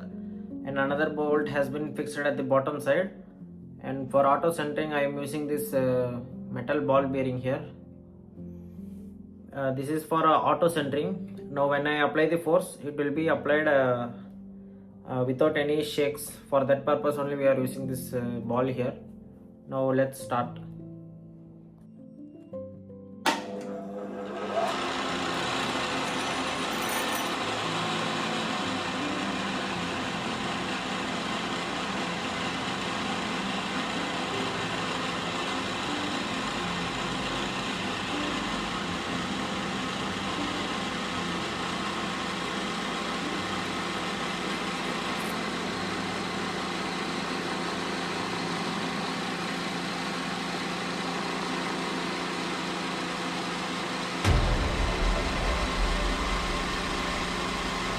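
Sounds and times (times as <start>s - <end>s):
pillar drill motor hum: 23.3s - 57.9s.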